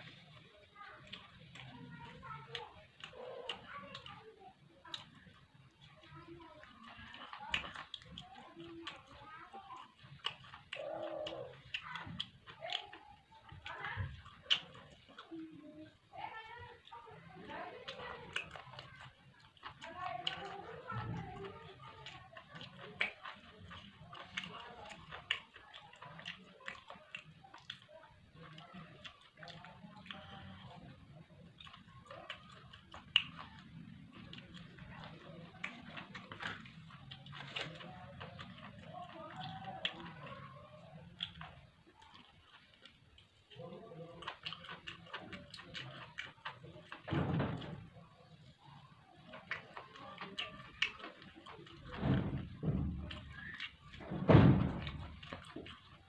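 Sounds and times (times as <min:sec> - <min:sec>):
person chewing food: 0:00.0 - 0:56.0
wet mouth clicks: 0:09.8 - 0:15.6, 0:21.4 - 0:30.7, 0:31.5 - 0:40.2, 0:40.9 - 0:47.1.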